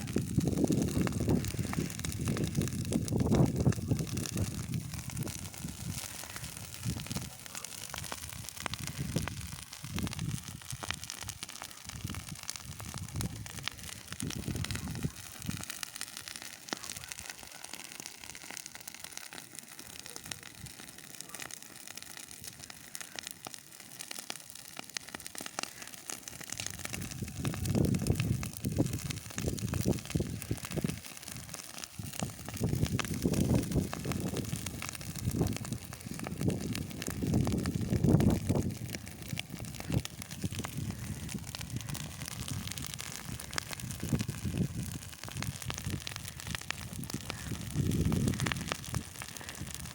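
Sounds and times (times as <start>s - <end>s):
dry grass fire crackling: 0.0s - 49.9s
low rumbling wind gusts: 0.1s - 7.2s, 8.1s - 11.0s, 32.0s - 49.9s.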